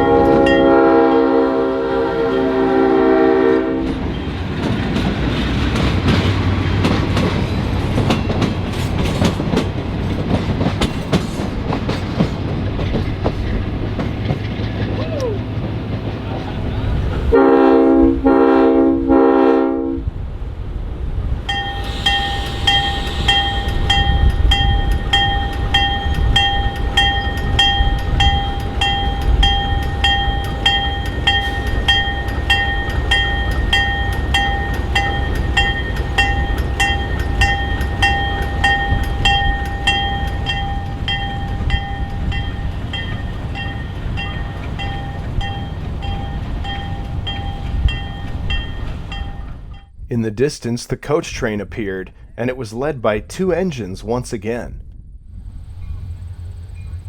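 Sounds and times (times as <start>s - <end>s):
diesel train rumbling: 0.0s - 57.0s
bell ringing: 21.5s - 49.9s.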